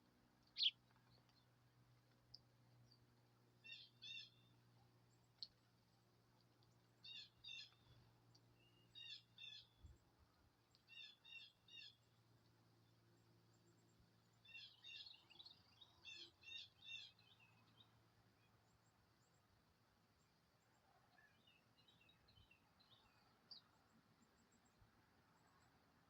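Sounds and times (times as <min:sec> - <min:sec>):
small bird chirping: 0:00.4 - 0:01.5, 0:02.3 - 0:05.6, 0:06.6 - 0:10.0, 0:10.7 - 0:12.2, 0:13.6 - 0:19.4, 0:21.1 - 0:24.7.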